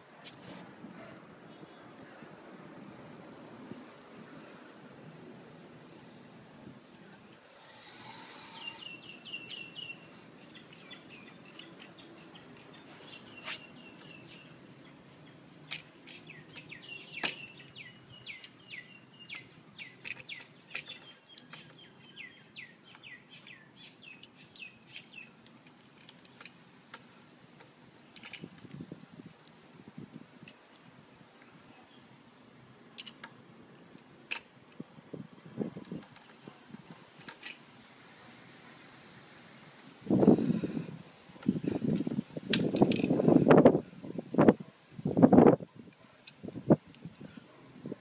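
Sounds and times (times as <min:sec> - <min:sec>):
small bird chirping: 0:08.1 - 0:15.4.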